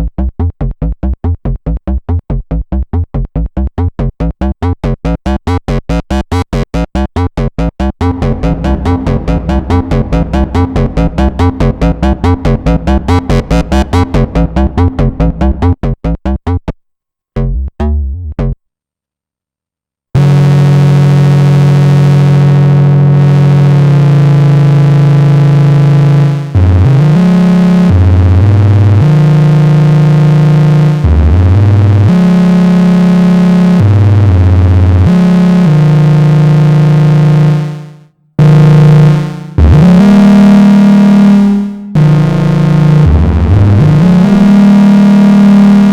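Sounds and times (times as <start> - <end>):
sustained low synth bass tone: 0.0 - 16.7, 39.0 - 45.9
synthesizer sequenced pattern: 0.0 - 16.8.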